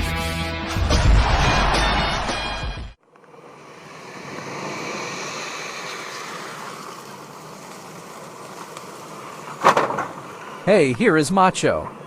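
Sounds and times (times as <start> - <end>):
steady rushing noise: 3.2 - 11.3.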